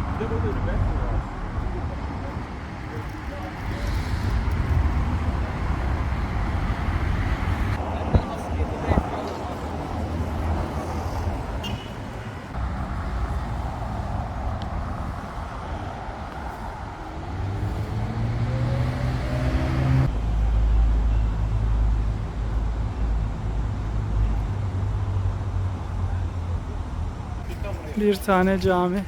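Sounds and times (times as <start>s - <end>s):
road rumble: 0.0s - 29.0s
engine speeding up: 17.2s - 20.2s.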